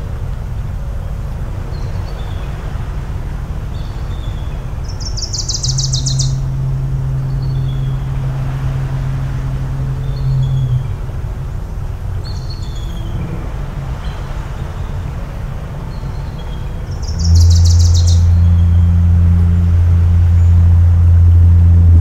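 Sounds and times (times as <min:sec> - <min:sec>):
distant engines: 0:00.0 - 0:22.0
rumble of sea: 0:00.0 - 0:22.0
faint bird chirps: 0:03.7 - 0:11.0, 0:15.9 - 0:19.0
bird rapid high trill: 0:04.9 - 0:06.5, 0:17.0 - 0:18.7
foghorn blast: 0:05.4 - 0:22.0.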